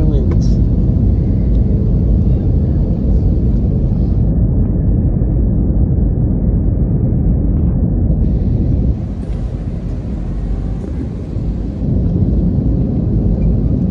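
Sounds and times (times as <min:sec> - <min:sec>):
airliner cabin engine rumble: 0:00.0 - 0:13.9.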